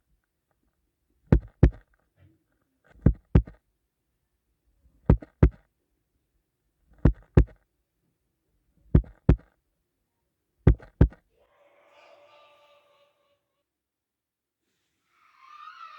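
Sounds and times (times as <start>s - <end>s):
heartbeat thumps: 1.3s - 1.8s, 3.0s - 3.6s, 5.1s - 5.6s, 7.0s - 7.6s, 9.0s - 9.5s, 10.7s - 11.2s.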